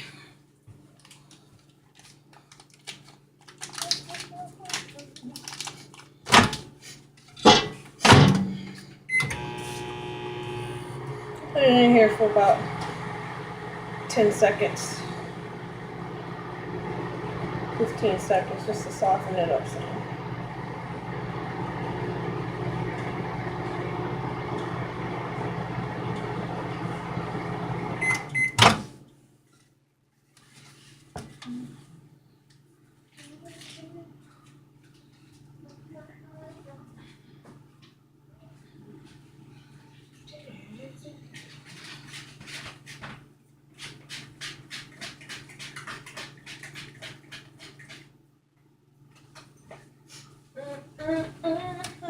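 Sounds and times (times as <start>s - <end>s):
microwave oven humming: 7.5s - 29.0s.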